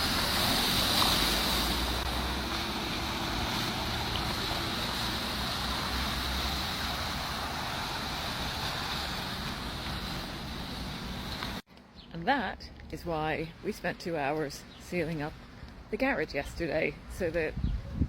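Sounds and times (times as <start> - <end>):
rushing water: 0.0 - 11.6
wind buffeting microphone: 17.2 - 18.0.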